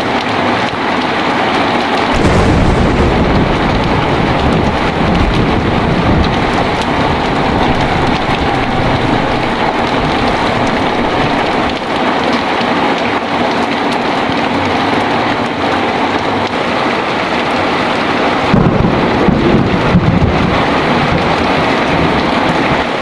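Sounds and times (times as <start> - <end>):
heavy rain pouring: 0.0 - 23.0
low thunder rumble: 2.1 - 12.4, 17.4 - 22.9.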